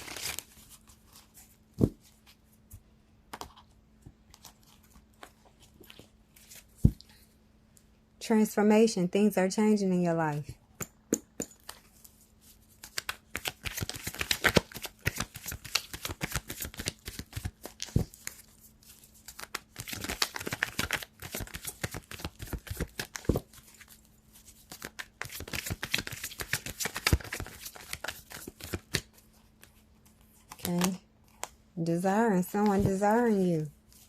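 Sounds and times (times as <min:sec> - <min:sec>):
cards being shuffled: 0:00.0 - 0:02.4, 0:11.6 - 0:31.5, 0:32.5 - 0:34.0.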